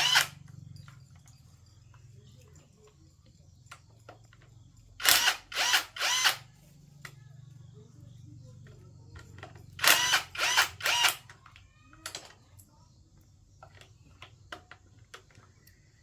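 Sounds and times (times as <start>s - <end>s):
power drill spinning: 0.0s - 1.1s, 5.0s - 6.5s, 9.4s - 11.6s
faint low hum: 0.0s - 16.0s.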